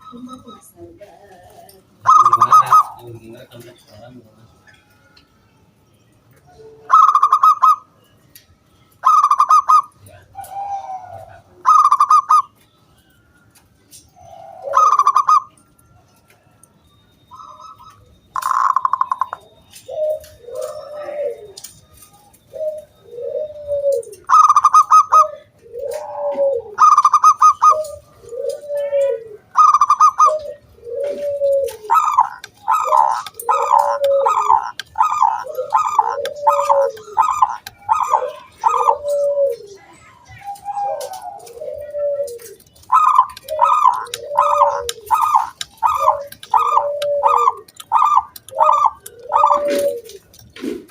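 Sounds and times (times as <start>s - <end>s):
doves cooing in stuttering bursts: 0.0s - 3.1s, 6.9s - 7.8s, 9.0s - 12.5s, 14.3s - 15.5s, 18.4s - 19.4s, 22.5s - 39.8s, 40.5s - 50.9s
low arched dove coo: 0.0s - 3.3s, 6.5s - 7.9s, 9.0s - 12.5s, 14.1s - 15.6s, 18.4s - 50.9s.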